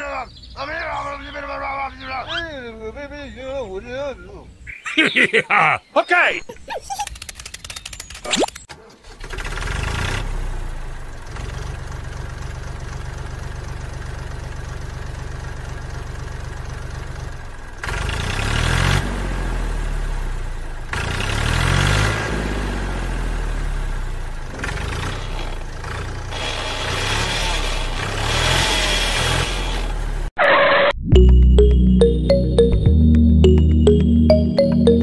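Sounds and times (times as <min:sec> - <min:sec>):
engine puttering and revving: 0:09.0 - 0:30.3.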